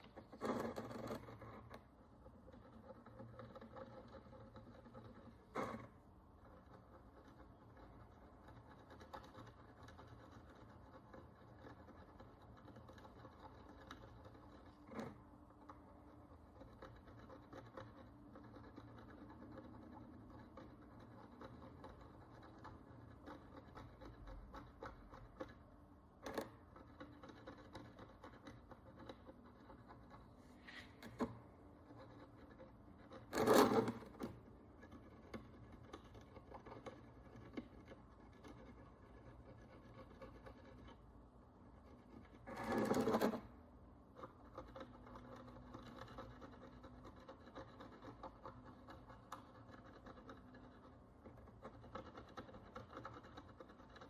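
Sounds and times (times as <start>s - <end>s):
hand tool scraping a coin: 33.1s - 34.3s.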